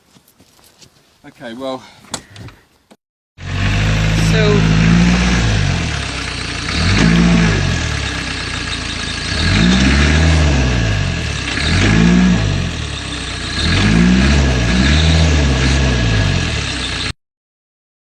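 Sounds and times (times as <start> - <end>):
car engine revving: 3.4 - 17.2.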